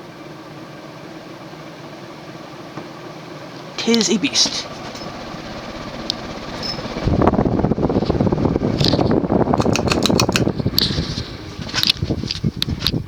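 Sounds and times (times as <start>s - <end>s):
ceiling fan air rush: 0.0s - 13.0s
fan clicking: 2.7s - 13.0s.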